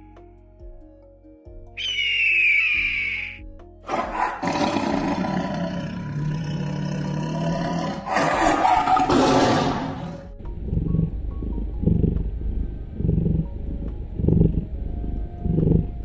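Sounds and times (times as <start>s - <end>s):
tiger roaring: 3.9s - 11.1s.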